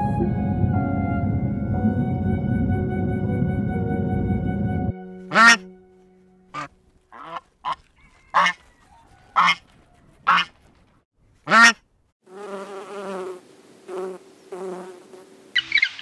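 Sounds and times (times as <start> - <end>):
geese honking: 5.2 - 10.6, 11.5 - 11.8
honeybee buzzing: 12.3 - 15.6.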